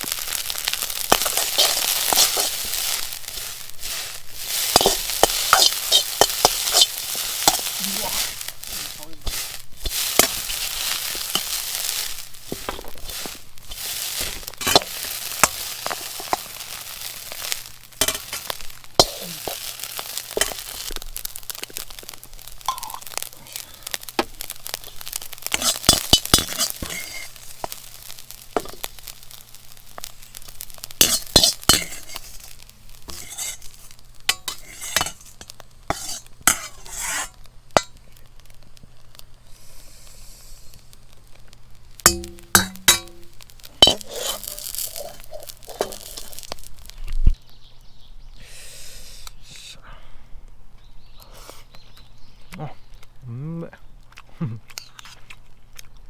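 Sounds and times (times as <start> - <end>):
spatula scraping a pan: 0.0 - 23.3, 24.3 - 29.0, 30.7 - 38.0, 42.0 - 46.7
rice sizzling in a wok: 0.0 - 49.8.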